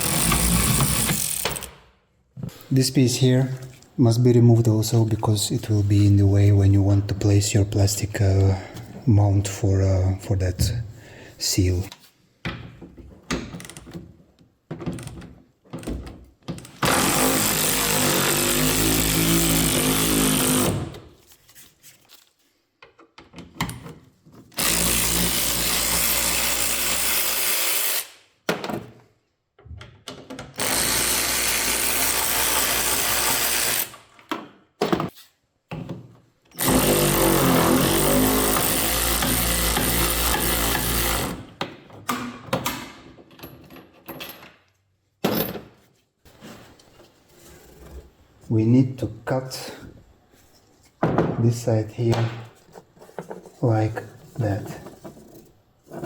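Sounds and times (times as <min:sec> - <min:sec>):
power tool motor running: 0:00.0 - 0:01.7, 0:16.9 - 0:20.8, 0:30.6 - 0:34.0, 0:36.6 - 0:41.4.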